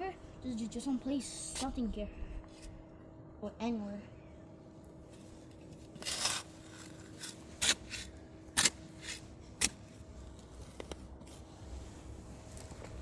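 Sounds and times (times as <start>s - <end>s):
shovel scraping garden soil: 5.7s - 11.8s.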